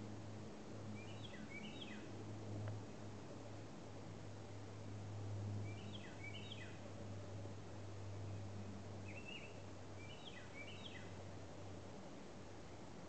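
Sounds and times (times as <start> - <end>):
soft hiss: 0.0 - 13.0
steady low hum: 0.0 - 13.0
songbird singing: 0.8 - 2.2, 5.6 - 6.9, 8.2 - 11.3.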